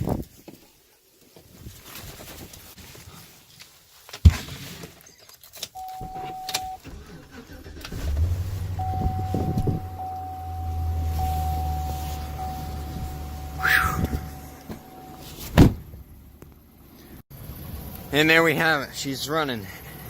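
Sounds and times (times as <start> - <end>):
warning chime: 5.8 - 6.8, 8.8 - 15.2
diesel engine starting and idling: 5.8 - 15.3
door thumping shut: 15.5 - 16.0.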